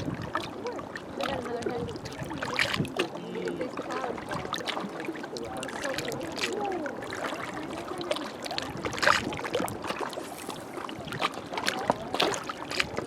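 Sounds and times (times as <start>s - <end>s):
small waves lapping: 0.0s - 13.0s
water splashing: 0.0s - 13.0s.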